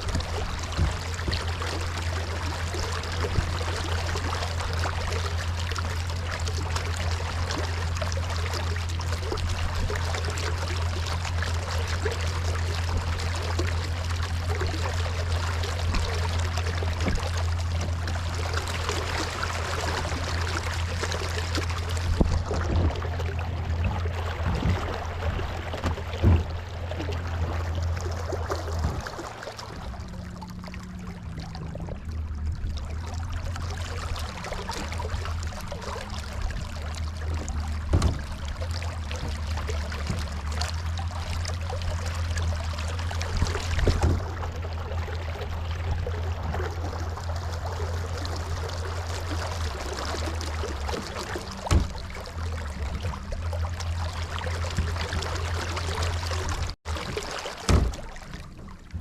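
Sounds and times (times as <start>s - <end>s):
knocks against hull: 0.0s - 7.0s, 15.6s - 29.5s, 34.7s - 47.4s, 48.2s - 59.0s
steady low hum: 0.0s - 59.0s
water splashing along hull: 0.0s - 59.0s.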